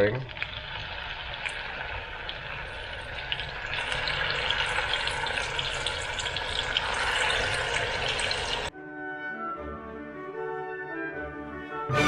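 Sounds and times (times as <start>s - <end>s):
paste sizzling in hot oil: 0.0s - 8.7s.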